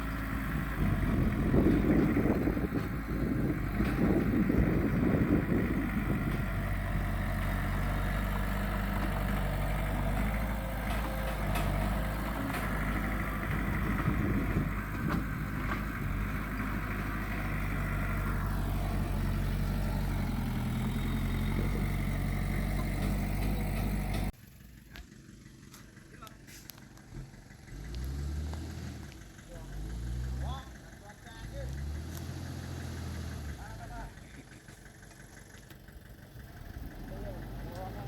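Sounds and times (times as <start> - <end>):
heavy diesel engine running: 0.0 - 38.0.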